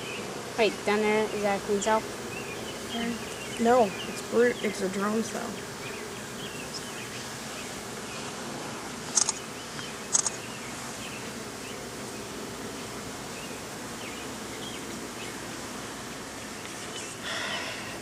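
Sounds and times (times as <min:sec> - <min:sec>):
honeybees buzzing: 0:00.0 - 0:18.0
sharp clicks: 0:09.1 - 0:10.4.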